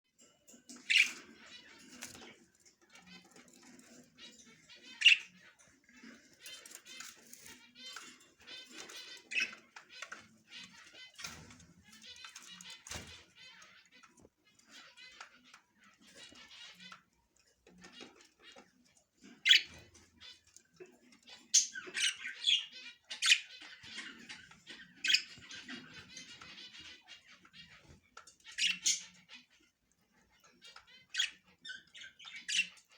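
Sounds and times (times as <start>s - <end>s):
budgerigars chattering: 0.8s - 2.3s, 3.0s - 13.8s, 17.8s - 29.7s
sharp bird calls: 3.0s - 17.0s.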